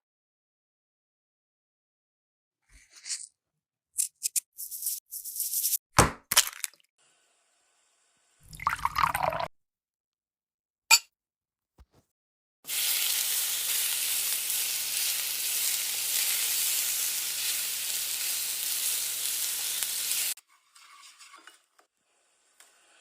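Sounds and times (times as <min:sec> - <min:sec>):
chicken sizzling in a pan: 0:12.7 - 0:20.4, 0:22.0 - 0:23.0.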